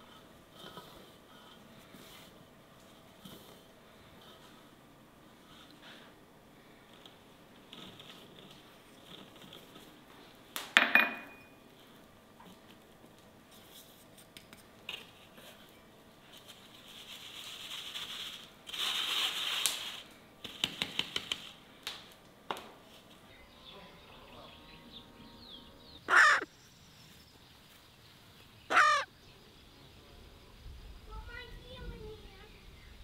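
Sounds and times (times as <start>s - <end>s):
loud short bird calls: 25.4s - 26.5s, 28.7s - 29.1s.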